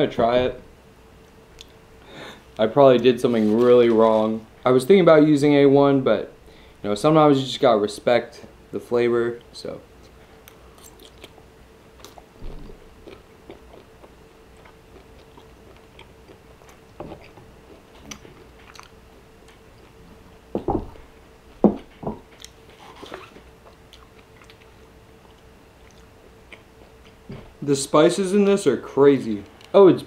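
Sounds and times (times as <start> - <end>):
faint steady hum: 0.0 - 30.0
man chewing food: 10.0 - 20.3, 22.2 - 27.4.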